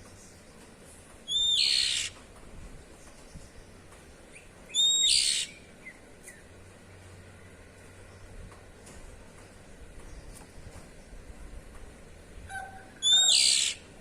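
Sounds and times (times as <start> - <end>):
bird harsh rasping calls: 1.3 - 2.2, 4.7 - 5.7, 12.5 - 13.9.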